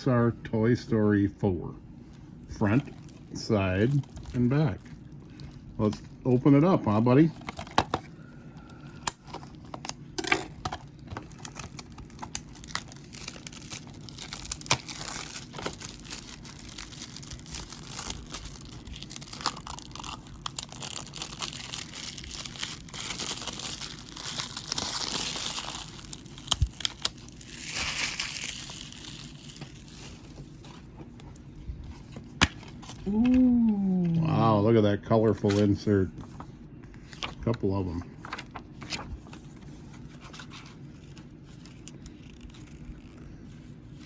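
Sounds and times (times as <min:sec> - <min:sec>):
plastic shrink-wrap crinkling: 0:09.3 - 0:31.5.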